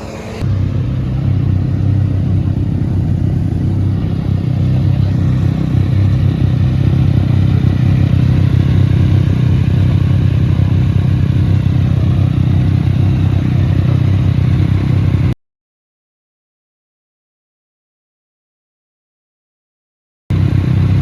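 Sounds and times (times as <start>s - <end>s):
motorcycle engine running: 0.0s - 15.4s, 20.3s - 21.0s.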